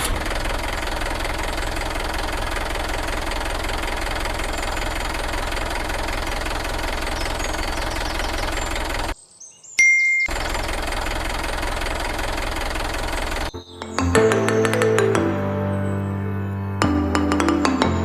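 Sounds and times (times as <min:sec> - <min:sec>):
small motor rattling: 0:00.0 - 0:09.2, 0:10.3 - 0:13.5.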